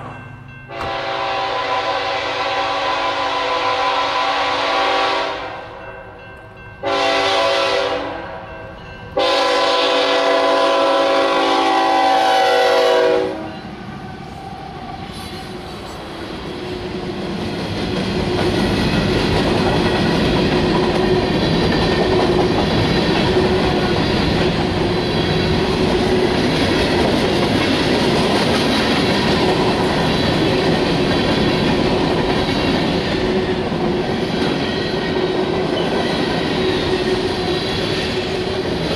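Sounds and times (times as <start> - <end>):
train passing rumble and clatter: 0.0 - 38.9
train air horn blasts: 0.7 - 5.8, 6.8 - 8.4, 9.2 - 15.4.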